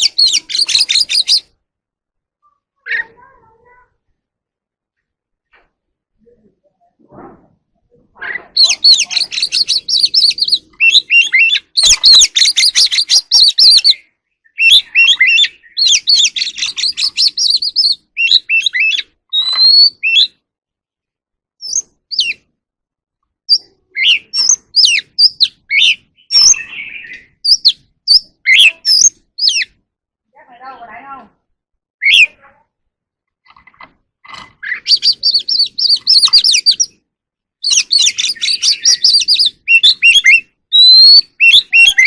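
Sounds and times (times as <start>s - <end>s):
magpie-robin singing: 0.0s - 1.6s, 8.2s - 20.4s, 21.6s - 22.5s, 23.5s - 29.8s, 32.0s - 32.5s, 34.4s - 37.0s, 37.6s - 42.0s.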